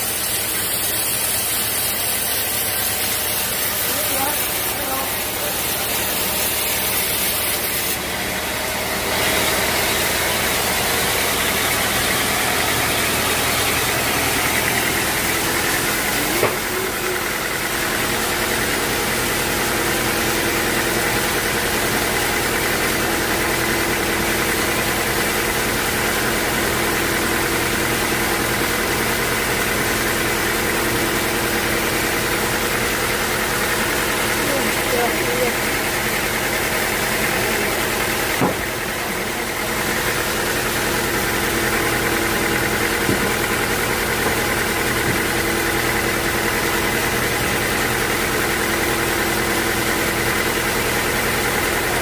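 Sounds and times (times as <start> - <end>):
sawmill machinery running: 0.0 - 52.0
sharp knock: 38.4 - 38.7.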